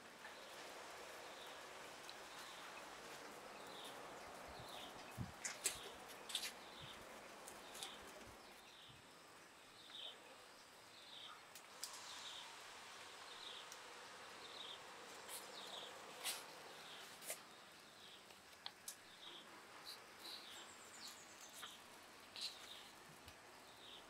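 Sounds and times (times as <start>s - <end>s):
bird chirping: 19.0s - 22.9s.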